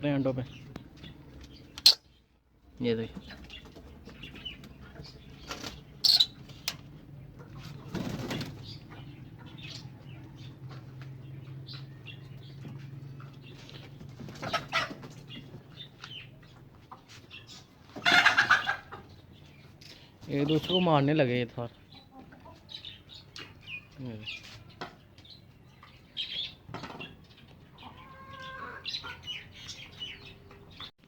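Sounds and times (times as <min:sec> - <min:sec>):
bird chirps: 0:00.2 - 0:06.7
pigeons flapping wings: 0:07.8 - 0:08.6.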